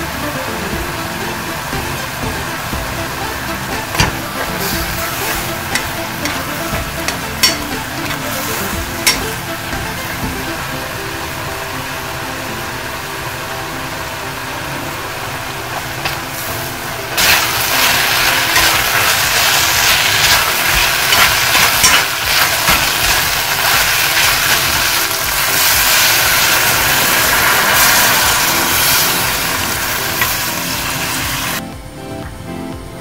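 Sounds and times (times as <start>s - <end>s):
meat sizzling in a pot: 0.5s - 10.6s, 15.7s - 31.6s.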